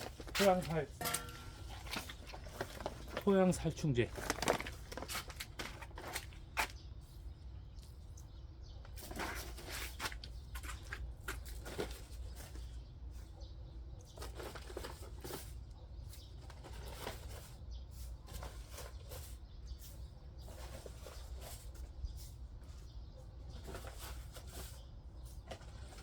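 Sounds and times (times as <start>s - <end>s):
granules rustling and crackling: 0.0s - 6.5s.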